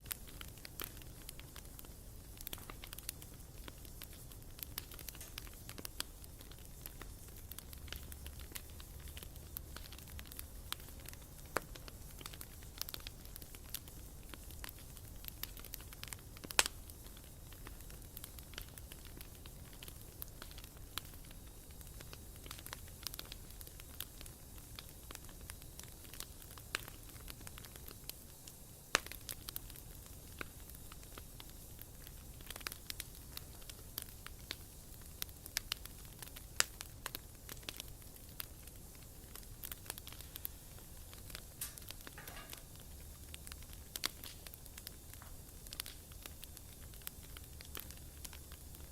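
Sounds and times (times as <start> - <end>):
bonfire crackling: 0.0 - 48.9
low rumble of fire: 0.0 - 48.9
sharp pop from fire: 1.7 - 17.0, 41.1 - 47.0.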